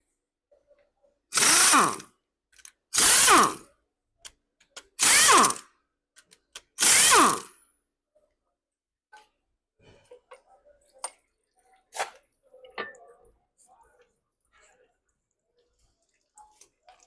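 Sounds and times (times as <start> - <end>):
power tool running: 1.4 - 2.0, 3.0 - 3.6, 5.0 - 5.6, 6.8 - 7.5.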